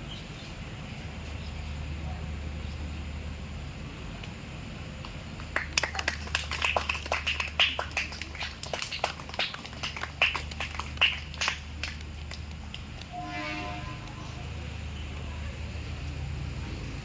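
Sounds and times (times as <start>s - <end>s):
steady low hum: 0.0s - 17.0s
people clapping: 5.0s - 15.4s.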